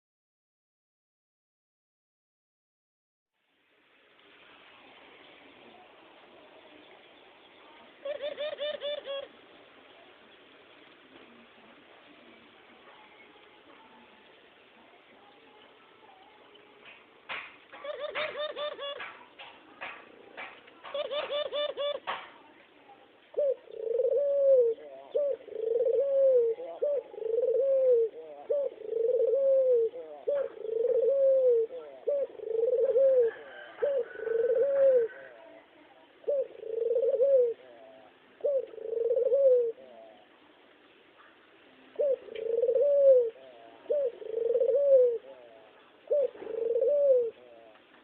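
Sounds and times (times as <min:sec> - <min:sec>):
dove cooing: 0:08.0 - 0:09.4, 0:17.7 - 0:22.2, 0:23.3 - 0:40.4, 0:41.3 - 0:48.0.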